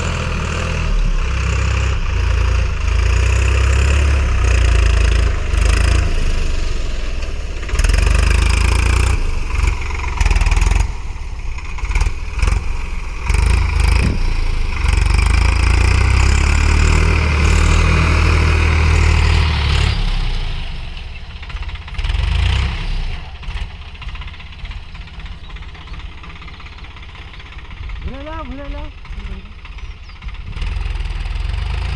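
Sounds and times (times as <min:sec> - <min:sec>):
tractor diesel engine running: 0:00.0 - 0:31.9
short knocks and buffeting: 0:13.5 - 0:15.2.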